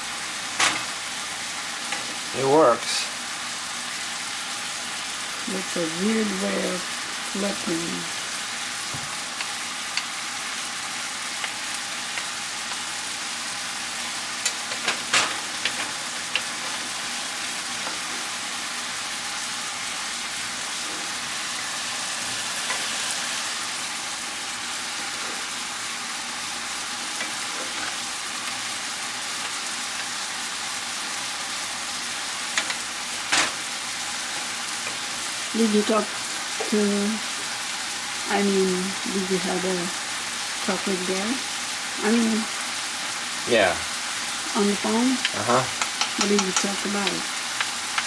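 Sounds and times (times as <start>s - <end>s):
pork sizzling in a pan: 0.0s - 48.0s
metal spoons clicking on pan: 45.2s - 48.0s.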